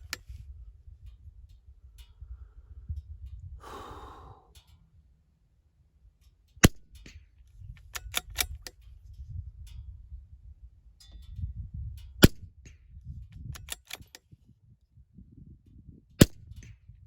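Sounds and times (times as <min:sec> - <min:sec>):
rifle bolt metallic clicks: 0:00.0 - 0:00.4, 0:06.6 - 0:08.9, 0:12.2 - 0:12.8, 0:13.5 - 0:14.3
person breathing: 0:03.6 - 0:04.6
rifle shot: 0:06.6 - 0:07.1, 0:12.2 - 0:12.5.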